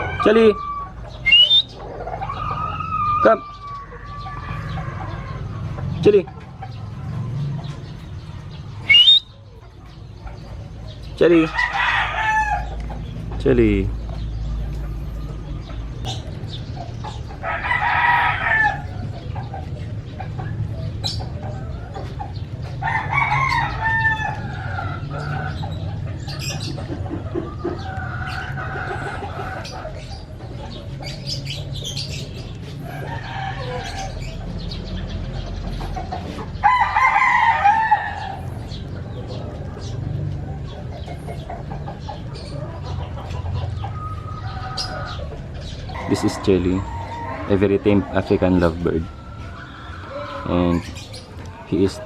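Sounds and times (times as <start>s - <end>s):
chickens calling: 0.0s - 52.0s
rooster crowing: 11.5s - 12.7s, 17.4s - 19.1s, 22.8s - 25.5s, 32.8s - 34.4s, 36.6s - 38.5s, 46.0s - 50.6s.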